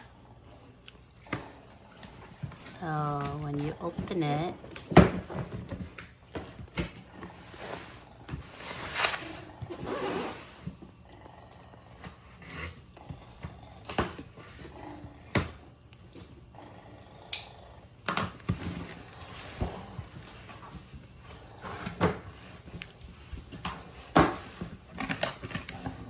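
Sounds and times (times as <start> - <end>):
cardboard packaging rustling: 2.2 - 10.7.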